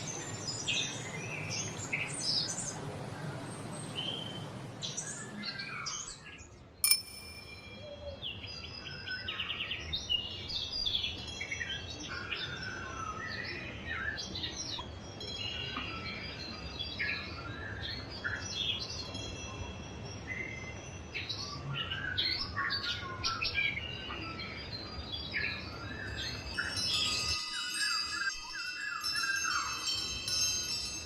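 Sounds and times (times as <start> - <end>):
songbirds chirping and trilling: 0.0 - 31.0
bell ringing: 6.8 - 8.2, 26.6 - 31.0.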